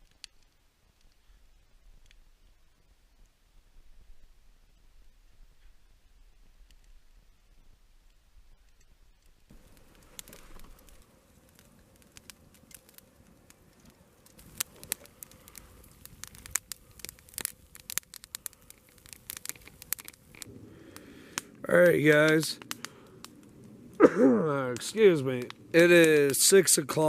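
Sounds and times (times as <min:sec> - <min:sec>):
campfire crackling: 0:00.0 - 0:27.0
burning logs popping: 0:08.6 - 0:27.0.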